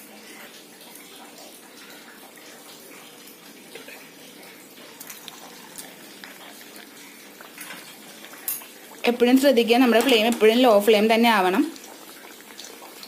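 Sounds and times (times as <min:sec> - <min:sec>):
flatbread deep-frying in oil: 0:00.0 - 0:13.0
small pops of frying oil: 0:05.0 - 0:13.0.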